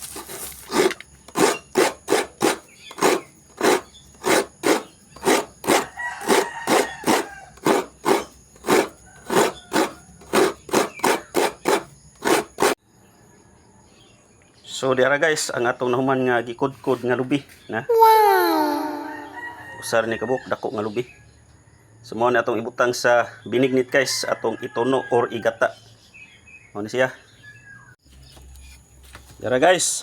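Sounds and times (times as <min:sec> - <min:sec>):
coconut rasping on grater: 0:00.0 - 0:12.8.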